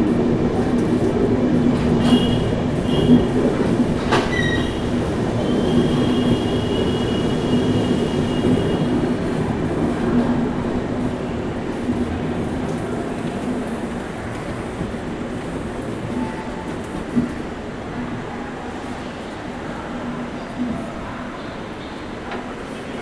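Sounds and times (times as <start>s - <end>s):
train rumbling on rails: 0.0s - 23.0s
high wheel squeal: 4.2s - 8.5s.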